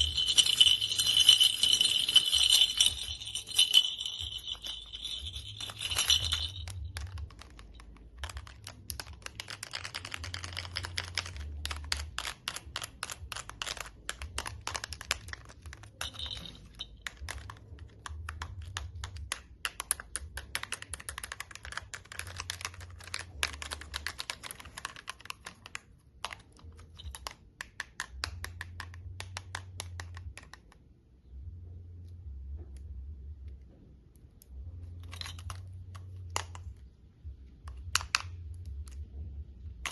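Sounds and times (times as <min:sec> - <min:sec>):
small bell jingling: 0:00.0 - 0:07.7, 0:15.9 - 0:17.0
toy clicking and tapping: 0:00.0 - 0:31.0, 0:34.4 - 0:39.9.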